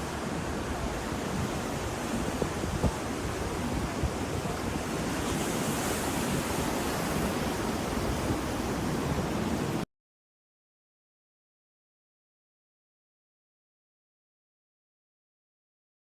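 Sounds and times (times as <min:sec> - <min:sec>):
ocean waves washing ashore: 0:00.0 - 0:09.8.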